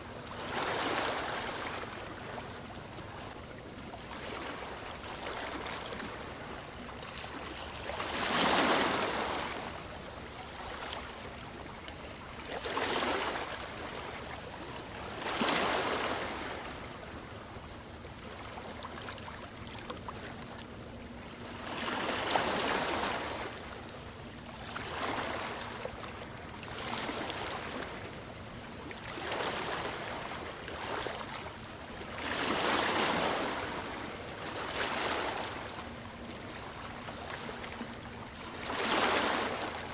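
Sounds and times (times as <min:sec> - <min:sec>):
ocean waves breaking: 0:04.1 - 0:09.8, 0:32.2 - 0:39.9.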